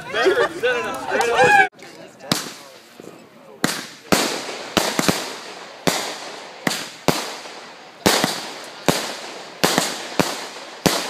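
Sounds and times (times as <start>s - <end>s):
fireworks bursting with sharp bangs: 2.2s - 11.0s.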